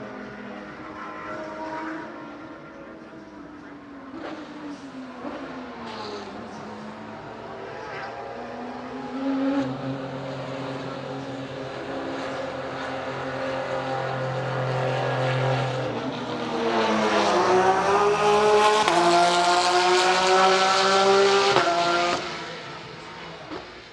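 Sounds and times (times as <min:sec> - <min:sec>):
race car engine revving: 0:00.2 - 0:23.8.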